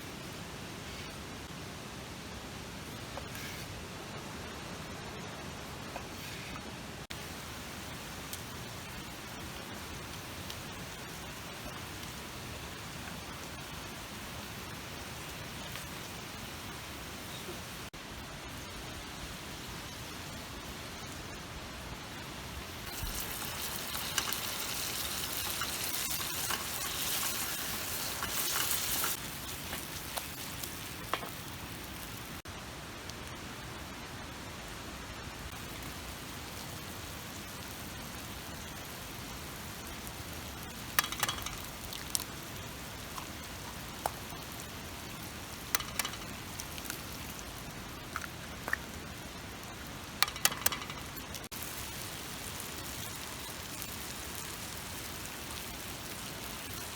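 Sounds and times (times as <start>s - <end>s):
food sizzling in a pan: 22.2s - 32.4s, 35.6s - 56.9s.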